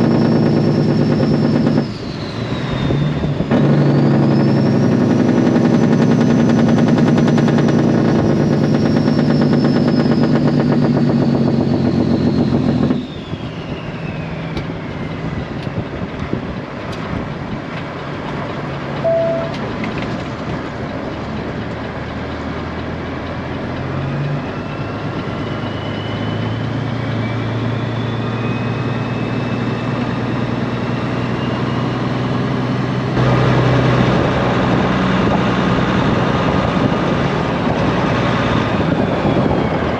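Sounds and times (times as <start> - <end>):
truck diesel engine running: 0.0 - 39.9
high whistle: 3.8 - 5.1, 19.0 - 19.7, 24.5 - 30.5.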